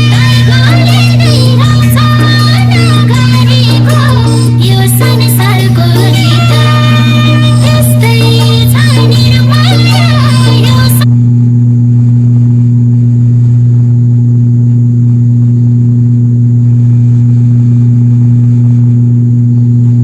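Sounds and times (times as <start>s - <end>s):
music: 0.0s - 11.1s
airplane cabin propeller drone: 0.0s - 20.0s.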